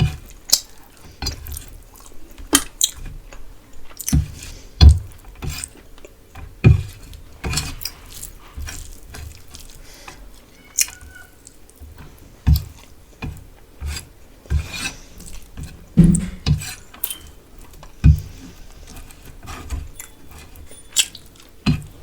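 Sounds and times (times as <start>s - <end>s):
chewing with wet mouth clicks: 0.4s - 4.2s, 7.8s - 11.8s, 17.0s - 18.0s, 20.0s - 21.6s.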